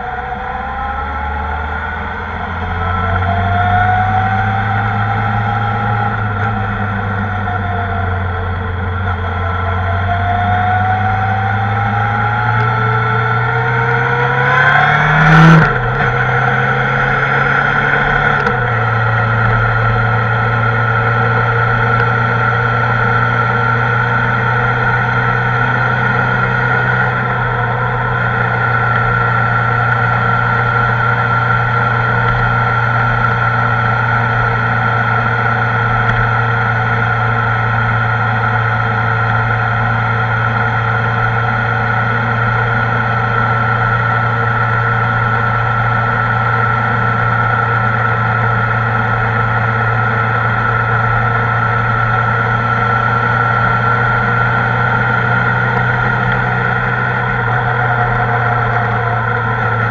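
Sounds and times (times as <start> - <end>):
motorcycle engine accelerating: 0.0 - 59.9
loud rush: 48.6 - 59.9.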